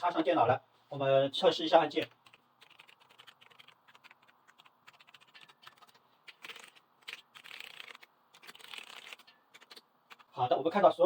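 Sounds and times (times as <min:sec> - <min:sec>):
keyboard keys clicking: 0:02.2 - 0:10.3.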